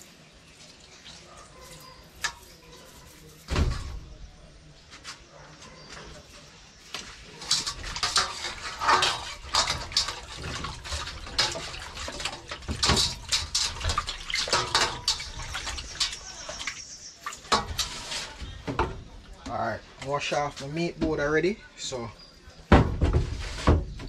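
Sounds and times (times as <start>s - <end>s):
running tap water: 7.5s - 18.4s
cutting board knocking and clattering: 22.7s - 24.0s.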